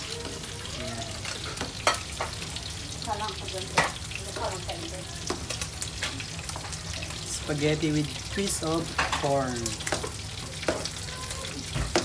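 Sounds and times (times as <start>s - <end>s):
food sizzling: 0.0s - 12.0s
metal spoon knocking on pot: 9.9s - 10.9s, 11.8s - 12.0s.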